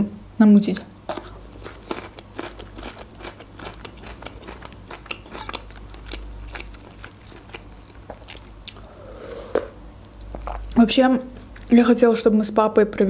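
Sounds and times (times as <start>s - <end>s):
crunchy chewing: 1.1s - 10.8s.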